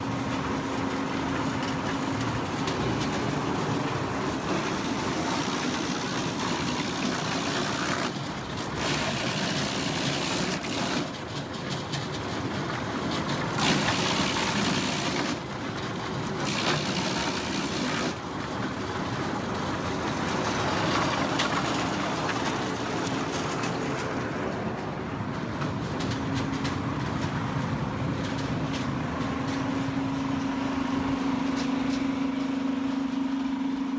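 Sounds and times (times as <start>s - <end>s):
wood chipper chipping wood: 0.0s - 24.6s
wood chipper motor hum: 0.0s - 33.9s.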